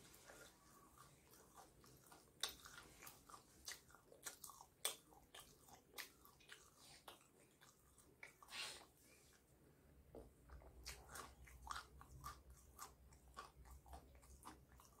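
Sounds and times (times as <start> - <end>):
chewing with wet mouth sounds: 0.0 - 15.0.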